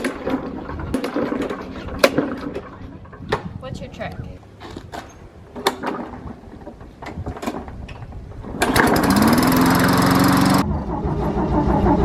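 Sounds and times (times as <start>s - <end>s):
lawn mower engine running: 5.5s - 12.0s
low pulsing engine: 8.0s - 12.0s.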